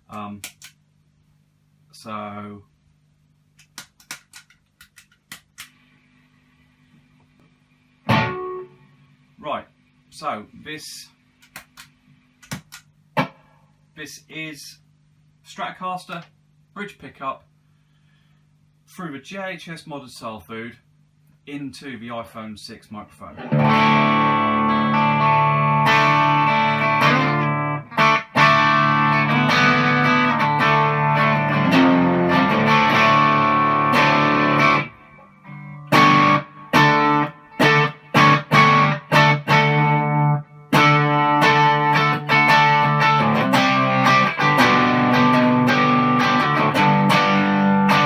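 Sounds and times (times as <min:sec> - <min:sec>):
overdriven electric guitar chords: 0:08.0 - 0:09.0, 0:23.4 - 0:48.0.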